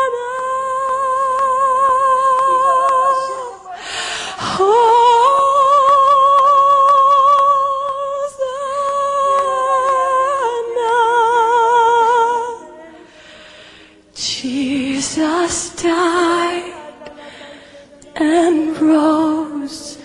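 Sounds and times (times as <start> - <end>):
high voice singing: 0.0 - 13.2.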